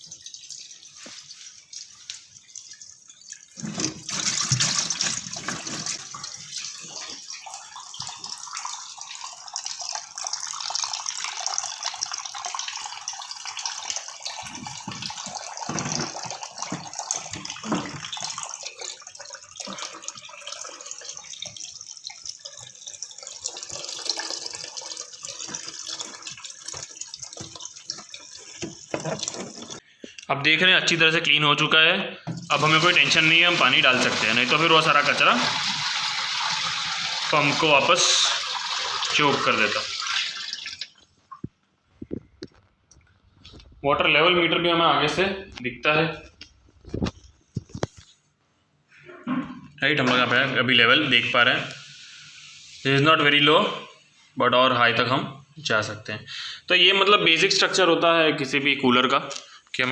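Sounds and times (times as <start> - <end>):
water draining from tank: 0.0 - 29.8, 32.2 - 41.5.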